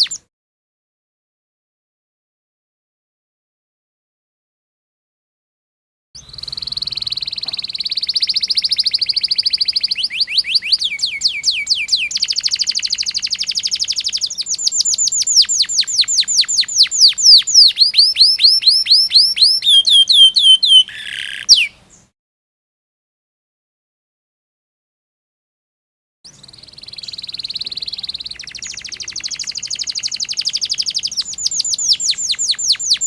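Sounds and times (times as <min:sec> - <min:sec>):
canary singing trills: 0:00.0 - 0:00.2, 0:06.2 - 0:22.1, 0:26.3 - 0:33.0.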